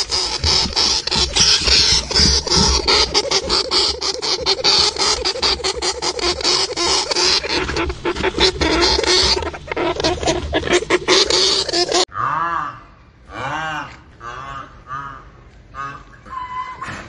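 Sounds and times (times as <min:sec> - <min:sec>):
animal chattering clicks and squeaks: 0:00.0 - 0:12.1.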